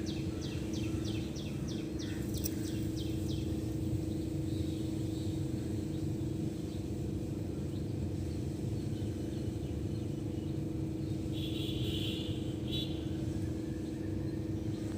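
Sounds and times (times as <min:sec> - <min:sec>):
small birds chirping: 0:00.0 - 0:11.8
steady low rumble and hum: 0:00.0 - 0:14.9.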